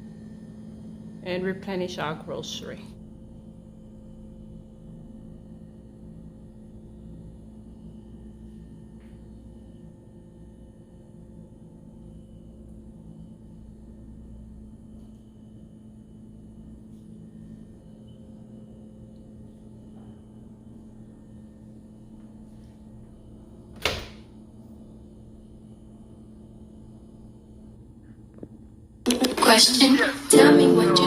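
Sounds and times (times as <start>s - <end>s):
steady low hum: 0.0s - 31.0s
door shutting knock: 23.8s - 24.2s.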